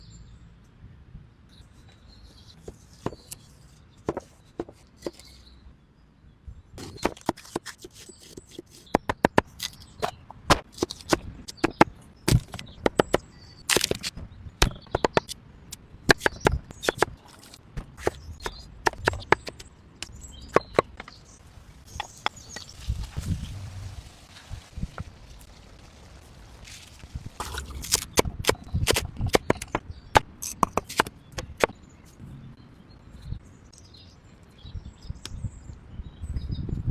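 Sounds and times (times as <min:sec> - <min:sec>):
sharp irregular clicks and knocks: 0:28.0 - 0:31.7.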